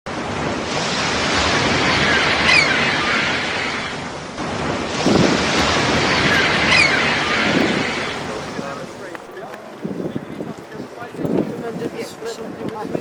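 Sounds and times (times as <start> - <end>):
sea waves surging: 0.1 - 13.0
wind buffeting microphone: 0.2 - 13.0
high gliding call: 1.8 - 4.1, 5.1 - 8.9.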